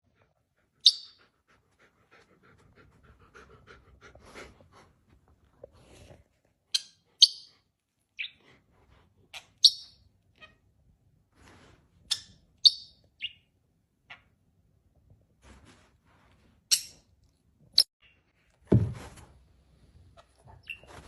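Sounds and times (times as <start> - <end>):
dog panting: 0.1 - 5.9.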